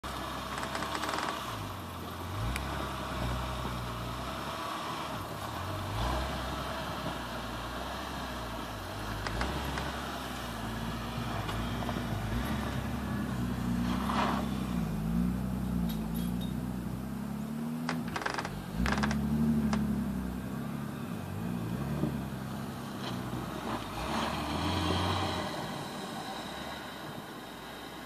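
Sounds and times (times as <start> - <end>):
car engine revving: 0.0 - 27.7.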